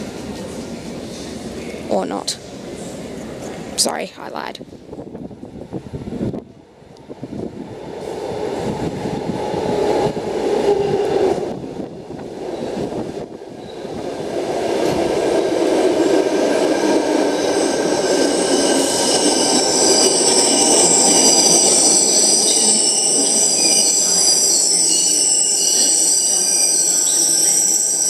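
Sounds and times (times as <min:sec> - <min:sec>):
electric train rumble: 0:04.7 - 0:28.0
wheel and brake squeal: 0:18.4 - 0:28.0.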